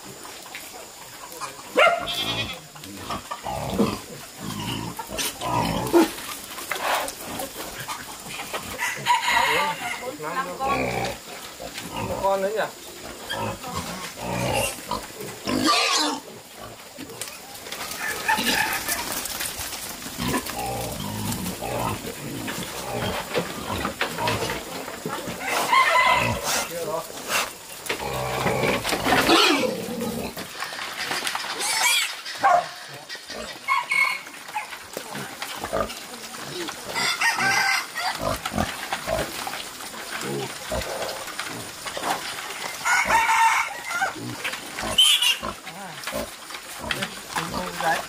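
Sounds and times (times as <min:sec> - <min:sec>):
pigs calling: 0:00.0 - 0:48.0
pig crying out: 0:01.8 - 0:02.6, 0:25.4 - 0:26.7, 0:29.2 - 0:30.1, 0:42.8 - 0:45.6.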